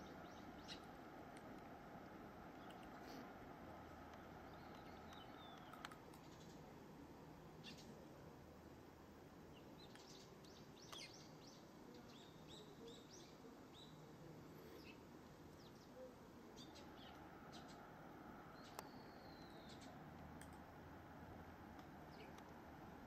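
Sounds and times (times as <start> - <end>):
outdoor background hum: 0.0 - 23.0
faint bird chirps: 4.1 - 6.7, 7.6 - 8.0, 9.5 - 20.1.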